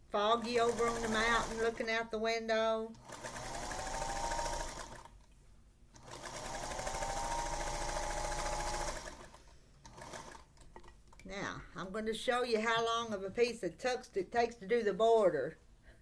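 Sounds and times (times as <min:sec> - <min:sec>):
sewing machine motor whine: 0:00.4 - 0:01.8, 0:03.0 - 0:05.1, 0:06.0 - 0:09.3.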